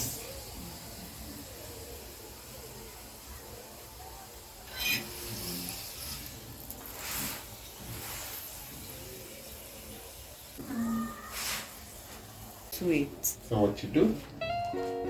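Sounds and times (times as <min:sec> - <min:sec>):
flatbread sizzling in a pan: 0:00.0 - 0:13.0
short loud hisses: 0:11.2 - 0:11.9.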